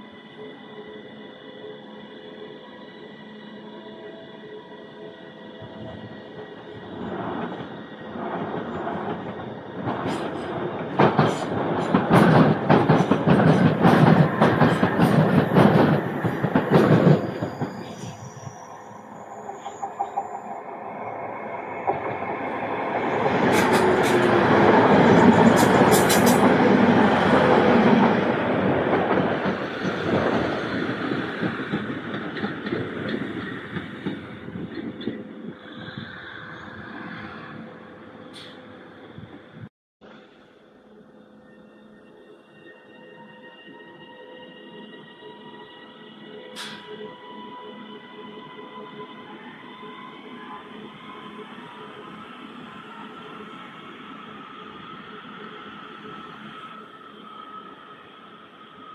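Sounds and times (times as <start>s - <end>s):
train passing with low hum: 0.0s - 58.9s
train wheels clacking over rail joints: 8.4s - 17.9s, 23.4s - 24.5s, 25.2s - 26.7s
high wheel squeals: 14.3s - 34.8s.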